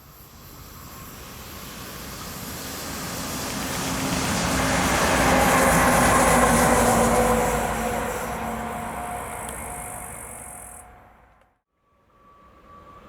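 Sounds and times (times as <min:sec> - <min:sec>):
electric train passing: 0:00.0 - 0:11.4
wheels rumbling on rails: 0:01.6 - 0:11.5
steady humming tones: 0:05.4 - 0:11.4.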